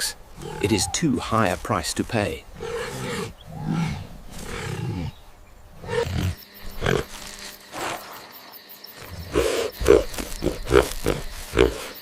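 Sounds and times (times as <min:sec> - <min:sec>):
large animal growling: 0:00.4 - 0:01.0, 0:02.5 - 0:05.2, 0:05.8 - 0:07.2.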